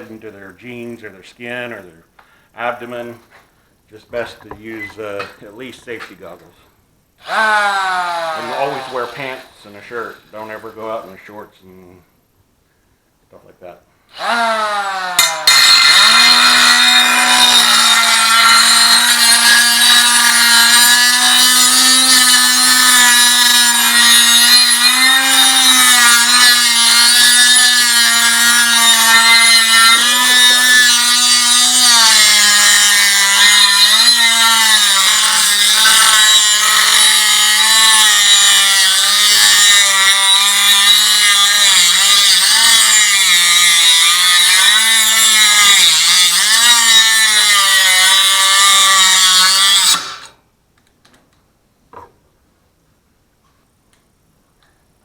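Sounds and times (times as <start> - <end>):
angle grinder cutting metal: 7.2 - 10.7, 14.2 - 50.4.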